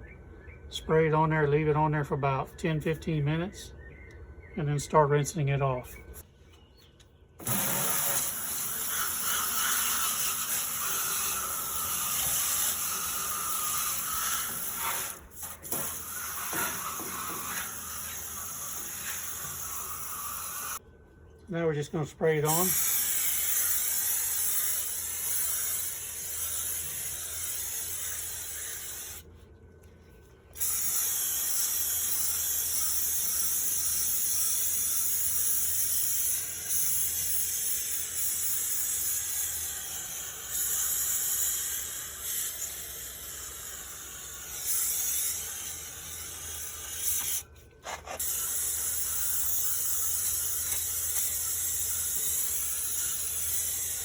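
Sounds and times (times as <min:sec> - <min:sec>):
aerosol can spraying hiss: 0:07.5 - 0:20.8.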